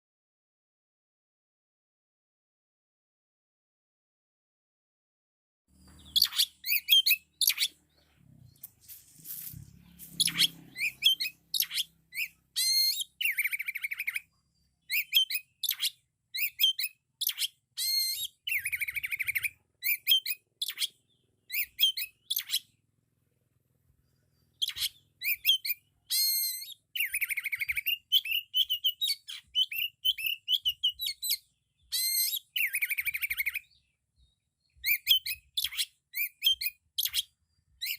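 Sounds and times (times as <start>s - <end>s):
buzzy bird trills: 5.7s - 22.8s
bird singing whistled phrases: 5.9s - 7.7s, 10.2s - 14.3s, 14.9s - 22.7s, 24.6s - 33.8s, 34.8s - 37.9s.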